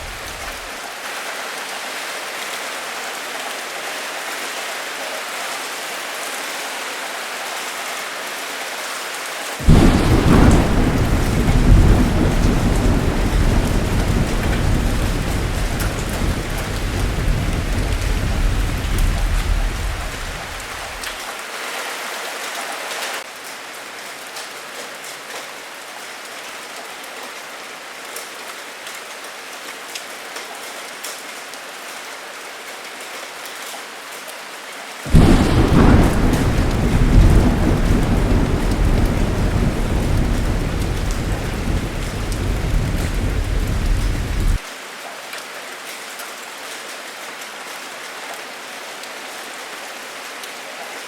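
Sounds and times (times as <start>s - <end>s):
thunder rumbling: 0.0s - 0.7s, 9.6s - 21.2s, 35.1s - 44.6s
heavy rain pouring: 0.0s - 28.0s, 34.8s - 45.1s.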